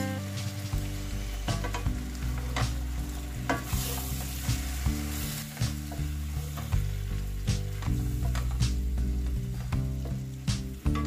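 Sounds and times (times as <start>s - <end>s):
prawns sizzling in oil: 0.0s - 11.0s
soft background music: 0.0s - 11.0s
spatula tapping and scraping pan: 3.4s - 4.1s, 7.5s - 10.2s.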